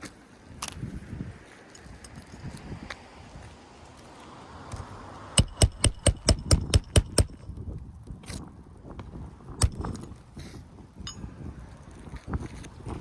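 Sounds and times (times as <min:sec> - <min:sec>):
hammer striking roofing nail: 0:05.4 - 0:07.4, 0:09.6 - 0:10.0.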